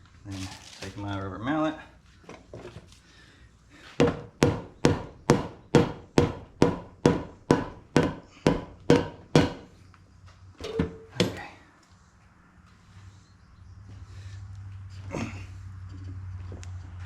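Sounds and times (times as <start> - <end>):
rubber mallet striking: 4.0 - 9.7.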